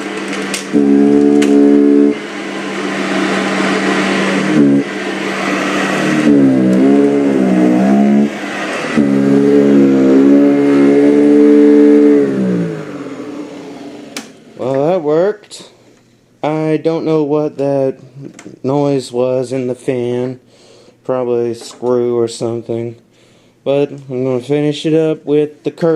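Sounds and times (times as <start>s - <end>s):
rattle in vacuum fan: 0.0s - 1.6s
upright vacuum running: 0.0s - 15.7s.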